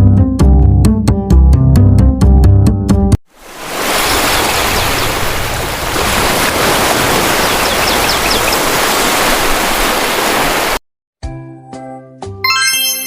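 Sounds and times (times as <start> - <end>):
ocean surf rushing: 3.3 - 10.8.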